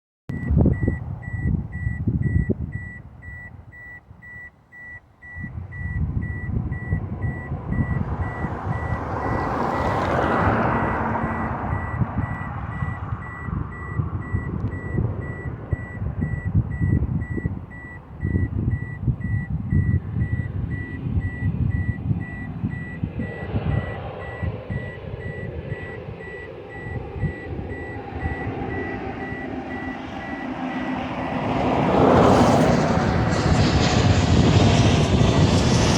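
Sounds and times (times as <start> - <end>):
wind buffeting microphone: 0.3 - 4.4, 5.4 - 35.9
reversing beeper: 0.3 - 31.4
airplane passing over: 5.5 - 16.0, 20.0 - 35.9.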